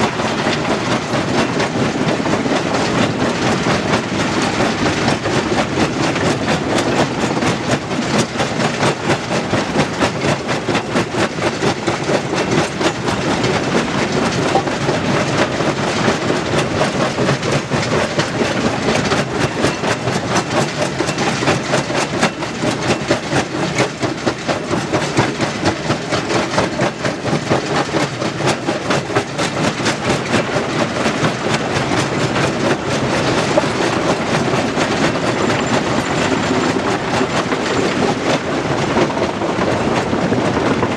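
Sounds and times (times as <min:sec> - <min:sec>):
stone crusher rattling: 0:29.9 - 0:38.4.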